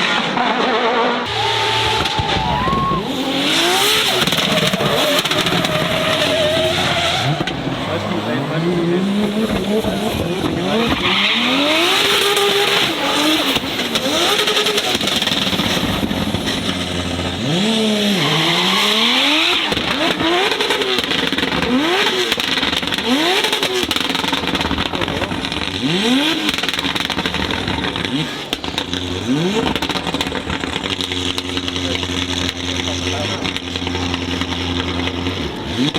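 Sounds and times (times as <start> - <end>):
car engine revving hard: 0.0 - 35.9
tyre screech: 0.4 - 15.8, 16.7 - 20.8.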